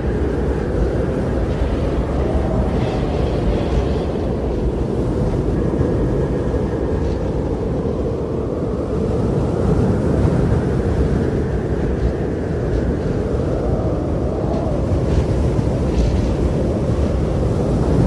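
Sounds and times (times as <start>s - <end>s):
blizzard wind blowing: 0.0s - 18.0s.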